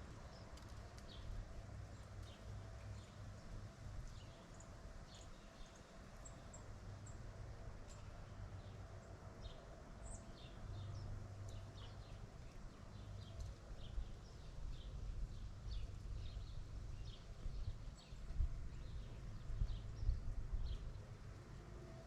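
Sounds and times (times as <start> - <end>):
small birds chirping: 9.4 - 21.1.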